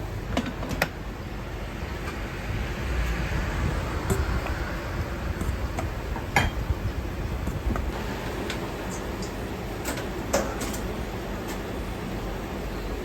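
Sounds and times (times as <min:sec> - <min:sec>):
burners and ventilation rushing: 0:00.0 - 0:13.0
utensils and dishes clinking: 0:06.3 - 0:06.6, 0:08.0 - 0:10.9.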